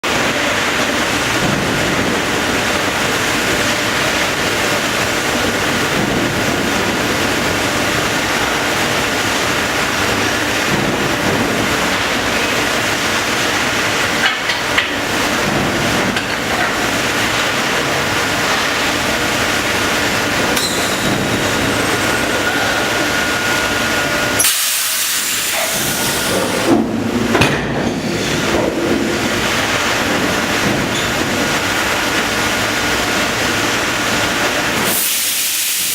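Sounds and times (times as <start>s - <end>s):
machine hiss and rumble: 0.0s - 35.9s
sharp metal clanks: 20.6s - 21.2s.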